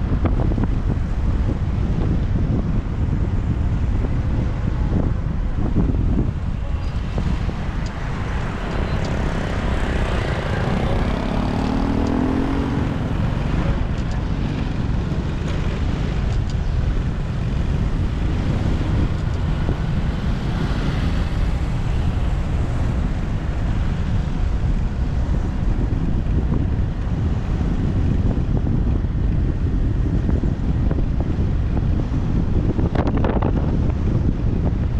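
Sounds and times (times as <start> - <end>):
traffic noise: 0.0 - 34.9
wind buffeting microphone: 0.0 - 34.9
vehicle passing by: 7.0 - 16.2.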